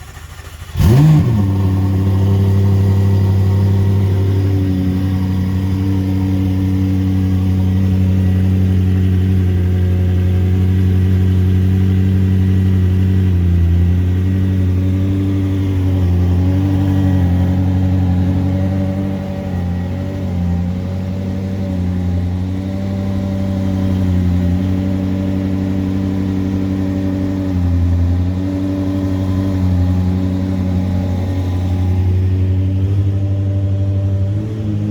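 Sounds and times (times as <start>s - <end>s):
sports car engine idling: 0.0s - 34.9s.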